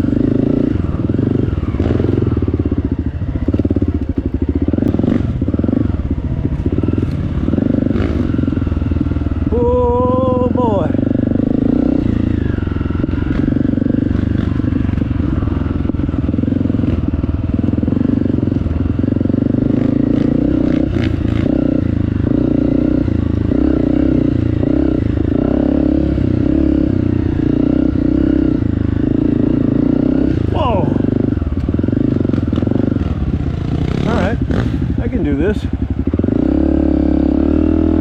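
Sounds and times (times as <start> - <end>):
motorbike engine running: 0.0 - 38.0.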